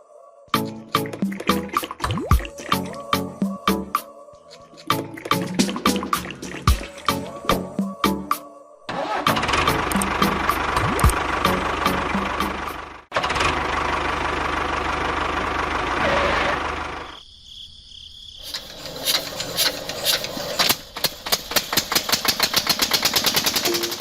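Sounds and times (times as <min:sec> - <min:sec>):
engine starting with rapid knocking: 0:08.9 - 0:17.0, 0:18.4 - 0:24.0
small engine running: 0:08.9 - 0:17.2, 0:18.5 - 0:24.0.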